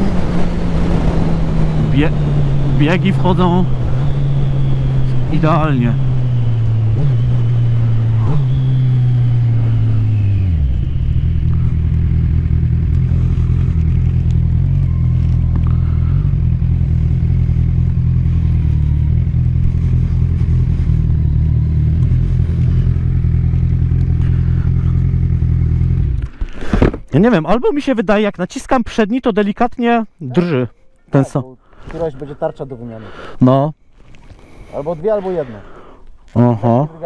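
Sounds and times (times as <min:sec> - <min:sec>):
motorcycle engine running: 0:00.0 - 0:27.2.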